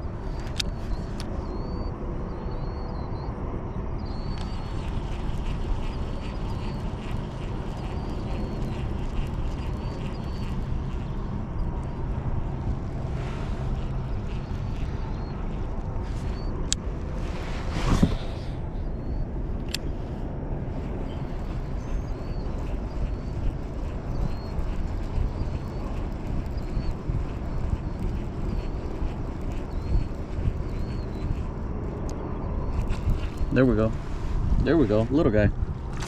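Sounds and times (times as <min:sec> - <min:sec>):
faint bird chirps: 0:00.2 - 0:03.3, 0:04.0 - 0:11.2, 0:20.9 - 0:31.6
wind buffeting microphone: 0:04.0 - 0:36.0.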